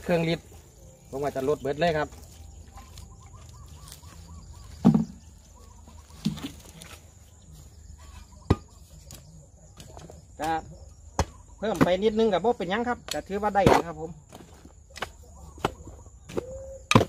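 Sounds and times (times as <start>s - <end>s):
faint bird warbling: 2.6s - 6.4s, 15.4s - 16.9s
loud pitched bird call: 2.6s - 6.8s, 7.9s - 9.0s, 15.3s - 17.0s.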